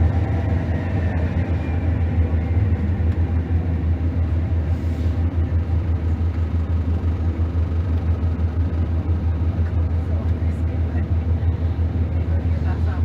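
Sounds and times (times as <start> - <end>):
bus diesel engine rumbling: 0.0 - 13.0.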